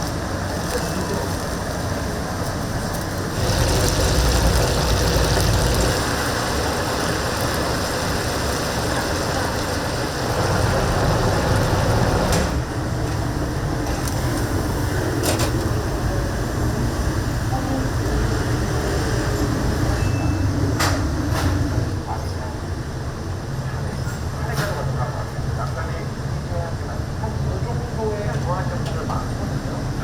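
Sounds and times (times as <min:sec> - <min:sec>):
low mechanical hum: 0:00.0 - 0:30.0
chicken deep-frying in oil: 0:02.4 - 0:12.4.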